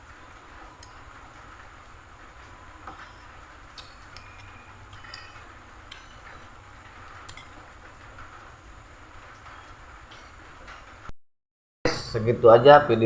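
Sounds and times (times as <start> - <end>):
background hiss: 0.0 - 11.1
spoon clinking against a bowl: 2.9 - 8.4.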